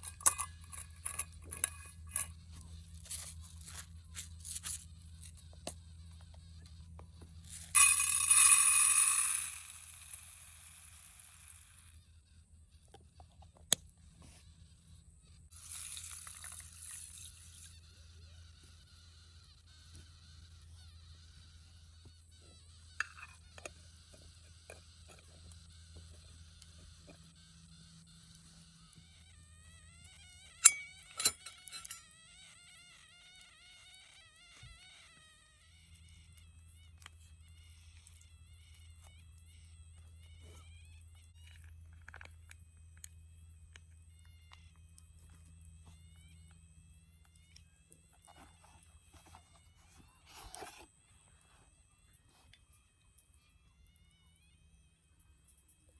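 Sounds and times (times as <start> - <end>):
sharp clinks: 0.0 - 2.3, 7.5 - 12.0, 15.6 - 17.7, 30.5 - 32.1.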